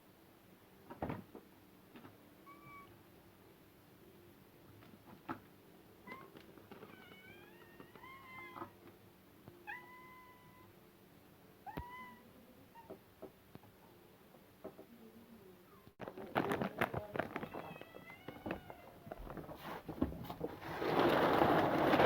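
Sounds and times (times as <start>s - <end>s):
cats meowing: 2.4s - 3.0s, 6.0s - 8.9s, 9.6s - 10.7s, 11.6s - 13.0s, 17.2s - 19.4s.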